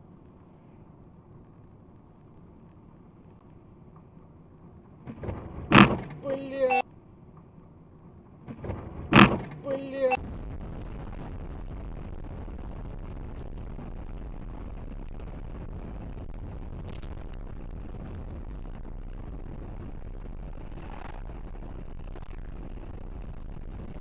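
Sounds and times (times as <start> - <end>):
car driving rumble: 0.0 - 24.0.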